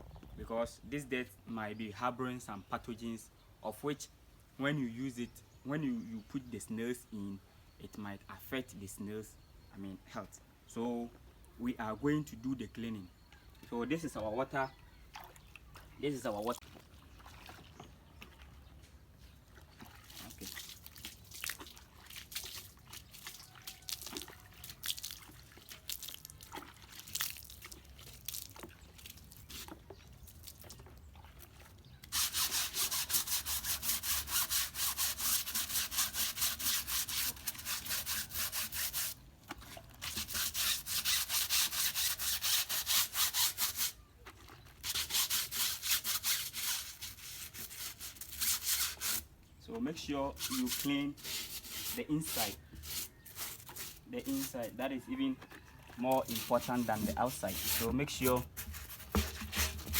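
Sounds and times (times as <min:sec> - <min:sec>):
scrubbing tyre: 0:31.8 - 0:59.9.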